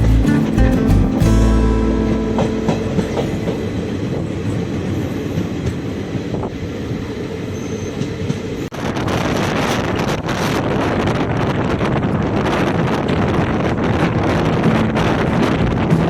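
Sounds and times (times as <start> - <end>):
train rumbling on rails: 0.0 - 16.0
wind on microphone: 8.7 - 16.0.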